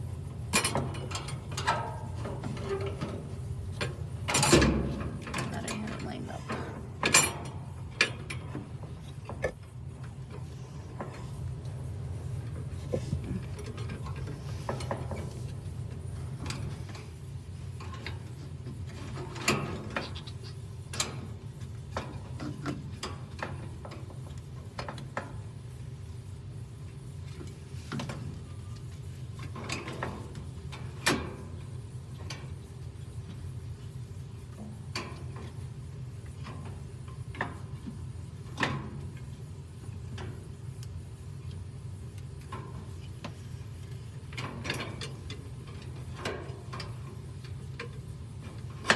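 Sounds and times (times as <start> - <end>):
steady low hum: 0.0 - 22.5.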